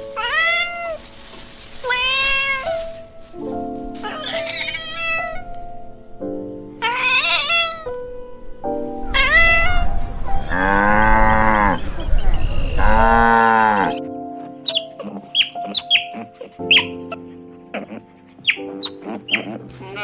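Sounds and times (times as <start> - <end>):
background music held notes: 0.0 - 20.0
kitten meowing: 0.2 - 1.0, 1.8 - 2.8, 4.0 - 5.5, 6.8 - 8.0, 9.1 - 10.6, 11.7 - 13.2
calf mooing: 10.5 - 12.1, 12.8 - 14.0.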